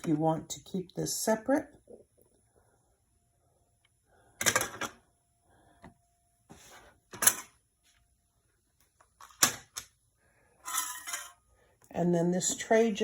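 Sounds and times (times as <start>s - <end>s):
plastic parts clattering: 4.4s - 5.0s, 10.6s - 11.4s.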